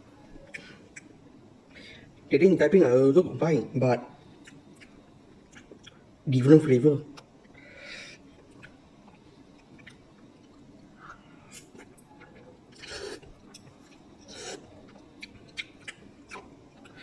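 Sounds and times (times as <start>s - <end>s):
person chewing noodles: 4.3s - 6.1s, 7.4s - 17.0s.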